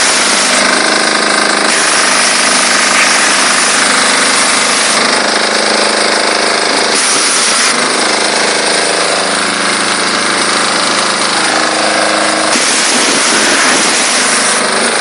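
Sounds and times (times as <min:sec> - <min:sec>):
diesel engine rattling: 0:00.0 - 0:15.0
high-pressure water jet hissing: 0:00.0 - 0:15.0.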